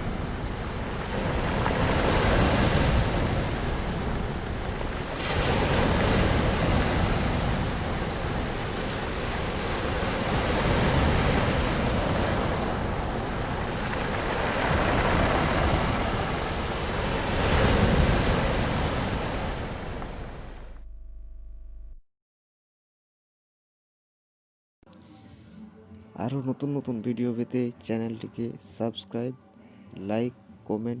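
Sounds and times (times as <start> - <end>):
rushing water: 0.0 - 20.7
wind buffeting microphone: 0.0 - 21.3.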